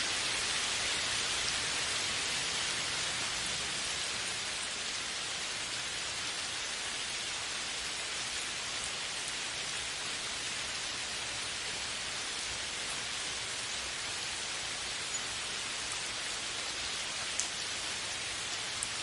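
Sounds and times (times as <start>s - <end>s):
steady rain: 0.0s - 19.0s
single raindrop ticks: 17.3s - 17.6s.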